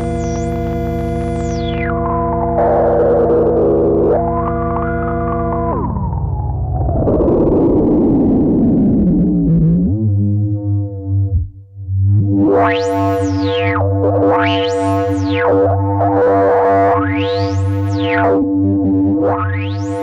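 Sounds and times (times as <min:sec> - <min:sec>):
resonant synth sweep: 0:00.0 - 0:20.0
synth low drone: 0:00.0 - 0:20.0.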